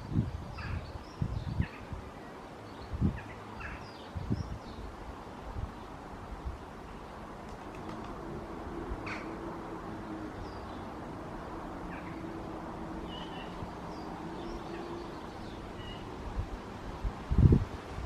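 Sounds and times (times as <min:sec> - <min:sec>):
wind in trees: 0:00.0 - 0:18.0
birds chirping: 0:11.8 - 0:16.2.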